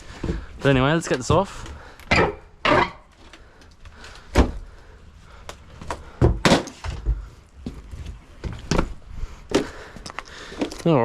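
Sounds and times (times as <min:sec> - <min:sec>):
knocks and thuds: 0:06.2 - 0:07.3.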